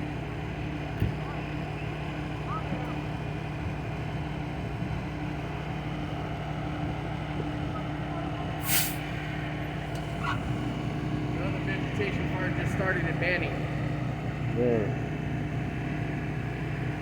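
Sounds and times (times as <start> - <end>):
diesel truck engine idling: 0.0 - 17.0
air hissing burst: 8.6 - 9.1.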